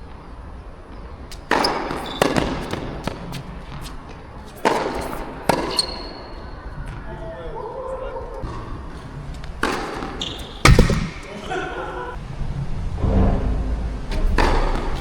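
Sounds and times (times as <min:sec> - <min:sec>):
tennis ball hits: 0:00.9 - 0:07.0, 0:08.4 - 0:11.9, 0:14.1 - 0:15.0
wind on microphone: 0:12.2 - 0:15.0.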